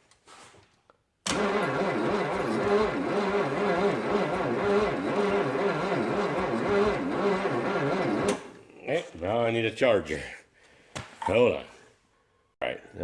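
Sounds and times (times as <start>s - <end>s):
starter motor cranking engine: 1.3s - 8.6s.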